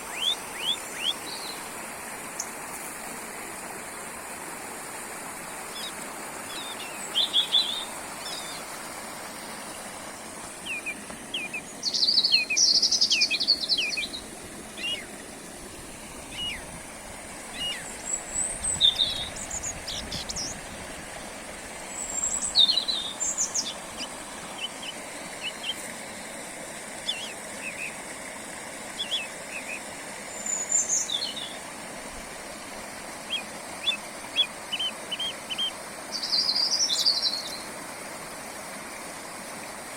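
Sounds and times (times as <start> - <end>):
songbirds chirping: 0.0 - 4.0, 4.9 - 20.8, 21.7 - 31.6.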